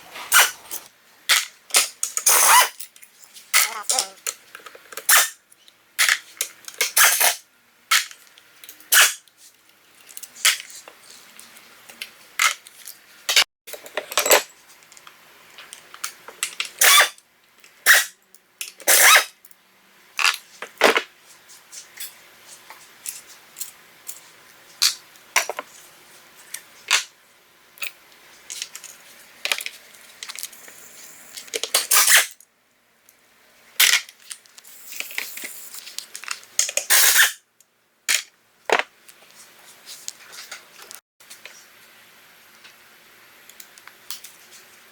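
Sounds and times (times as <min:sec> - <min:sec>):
metal tools clinking and knocking: 0:13.7 - 0:14.6.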